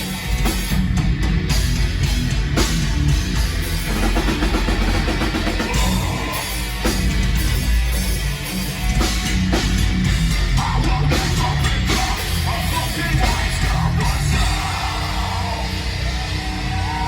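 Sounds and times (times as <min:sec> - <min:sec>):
distorted guitars: 0:00.0 - 0:17.0
drums and cymbals: 0:00.0 - 0:17.0
shouted vocals: 0:05.6 - 0:06.8, 0:10.6 - 0:17.0.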